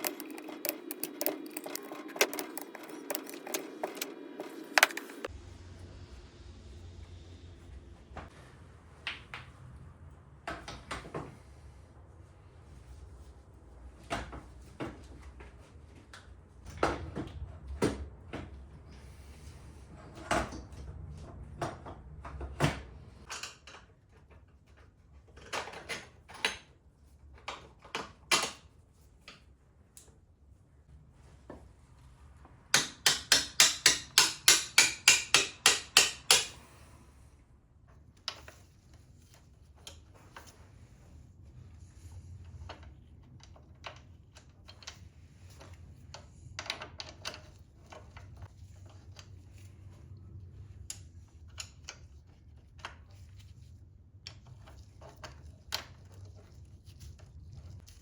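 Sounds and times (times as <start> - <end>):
metal tools clinking: 0.0 - 5.3.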